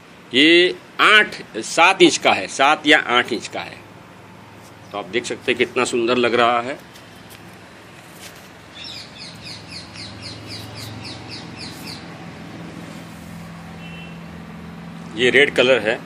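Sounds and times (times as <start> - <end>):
bird chirping rapidly: 8.6 - 12.2, 13.7 - 14.3.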